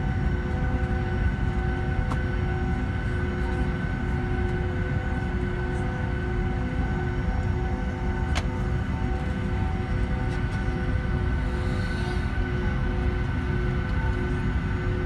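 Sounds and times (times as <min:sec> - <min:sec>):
airplane cabin engine rumble: 0:00.0 - 0:15.0
whining engine tones: 0:10.6 - 0:14.6.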